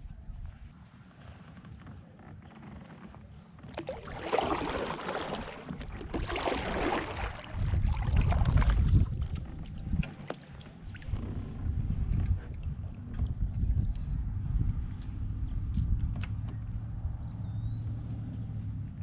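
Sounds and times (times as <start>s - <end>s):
wind rumble on microphone: 0.0s - 2.5s, 3.1s - 19.0s
insects chirping: 0.0s - 19.0s
paddle swishing through water: 0.7s - 13.5s.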